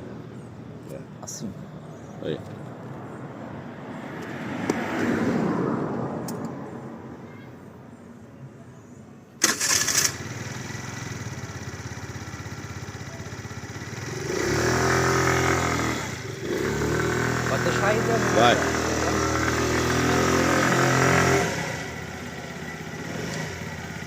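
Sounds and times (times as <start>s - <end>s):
scooter engine starting and idling: 9.4s - 16.8s, 21.4s - 24.0s.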